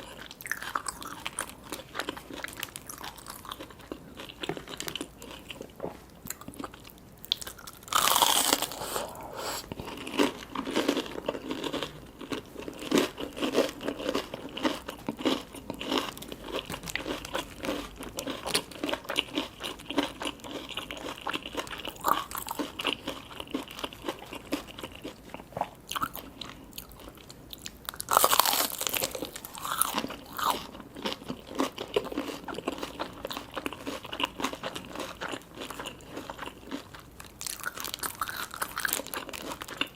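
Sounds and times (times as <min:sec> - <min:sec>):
chewing: 0:00.0 - 0:39.9
crunchy bites: 0:06.3 - 0:25.1, 0:27.9 - 0:39.9.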